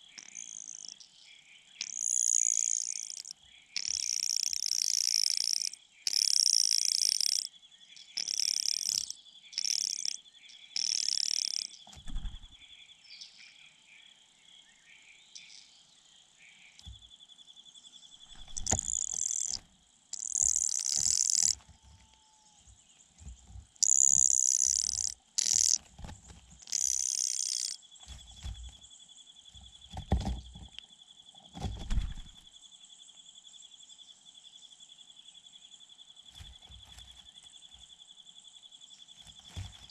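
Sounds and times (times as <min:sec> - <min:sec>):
insect trill: 0:00.0 - 0:39.9
high-pitched bird chirping: 0:00.2 - 0:01.0, 0:01.8 - 0:07.5, 0:08.2 - 0:11.8, 0:18.3 - 0:19.6, 0:20.2 - 0:21.6, 0:23.8 - 0:25.8, 0:26.6 - 0:27.8.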